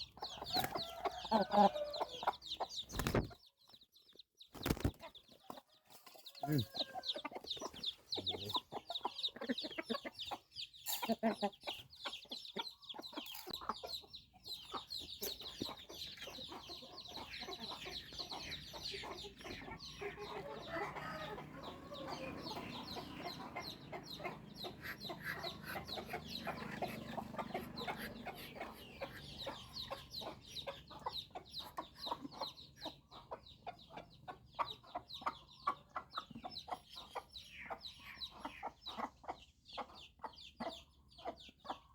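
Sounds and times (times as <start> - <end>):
chicks peeping: 0.0 - 41.9.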